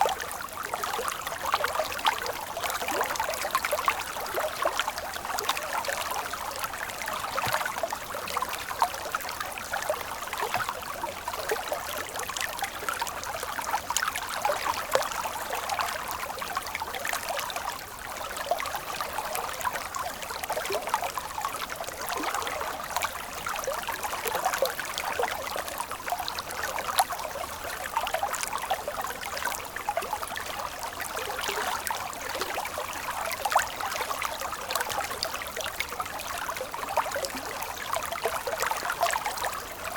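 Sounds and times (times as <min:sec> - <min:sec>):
stream water flowing and trickling: 0:00.0 - 0:39.9
small water splashes: 0:00.9 - 0:12.5.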